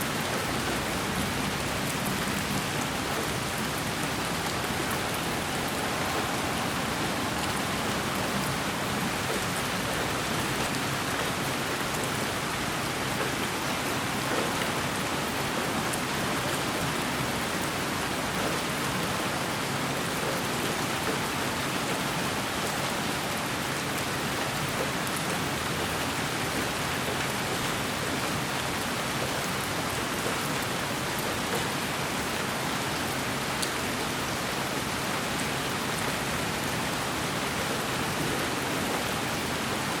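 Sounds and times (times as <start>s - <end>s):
white noise hiss: 2.4s - 10.8s.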